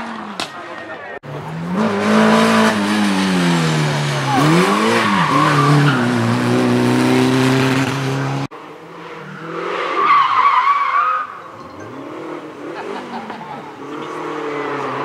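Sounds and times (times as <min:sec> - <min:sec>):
rally car engine at high revs: 0:01.2 - 0:10.4, 0:11.8 - 0:15.0.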